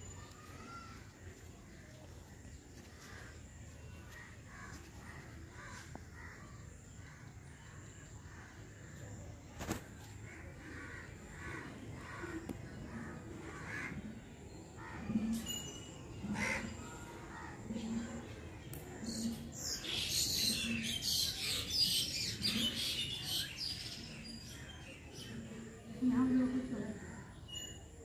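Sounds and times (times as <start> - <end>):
birds calling: 9.6 - 27.7.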